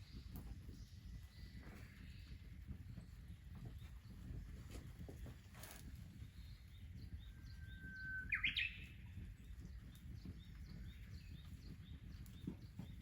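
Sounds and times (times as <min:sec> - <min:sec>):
bird singing whistle: 0:07.4 - 0:09.1.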